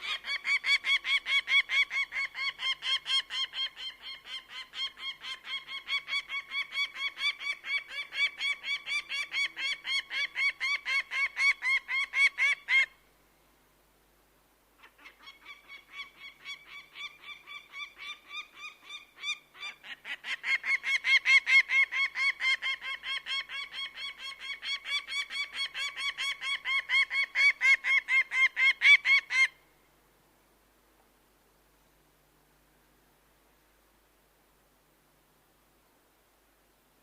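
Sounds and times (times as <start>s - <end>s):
bird of prey calling: 0.0s - 13.0s, 14.8s - 29.6s.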